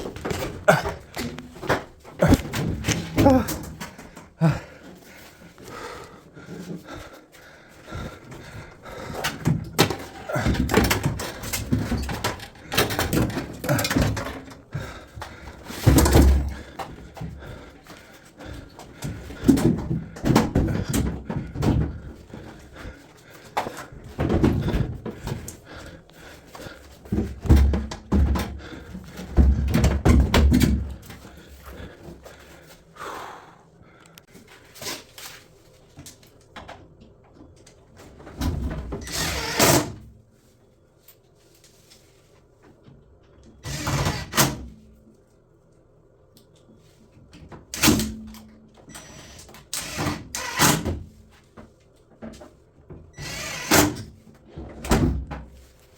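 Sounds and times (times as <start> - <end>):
machine parts knocking and clattering: 8.9 - 17.7.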